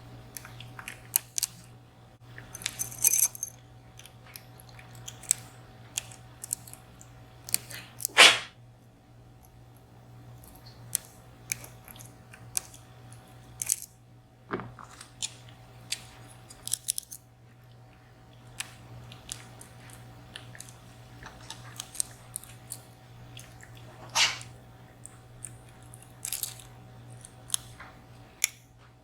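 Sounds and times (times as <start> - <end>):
lock pick clicks and scrapes: 2.4 - 3.5.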